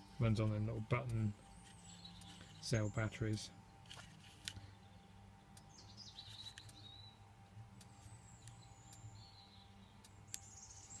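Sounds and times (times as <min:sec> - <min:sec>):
faint birds chirping: 0:00.0 - 0:11.0
refrigeration units humming: 0:00.0 - 0:11.0.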